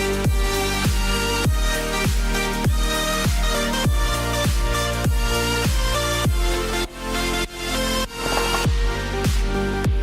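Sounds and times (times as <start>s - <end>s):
deep kick drum: 0.3s - 6.5s, 8.7s - 10.0s.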